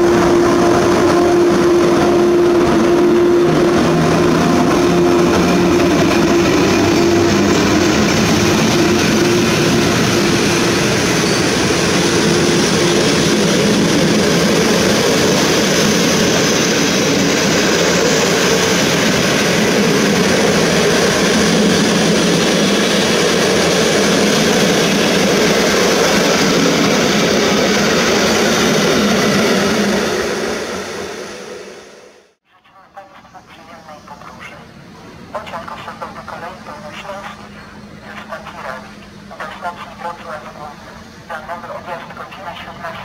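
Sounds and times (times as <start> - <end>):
train wheels rolling on rails: 0.0 - 32.2.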